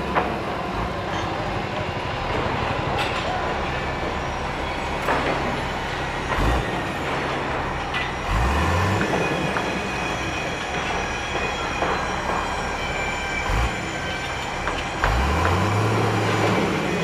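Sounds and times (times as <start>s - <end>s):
construction machinery engine hum: 0.0s - 17.0s
high metallic squeals: 1.6s - 14.6s.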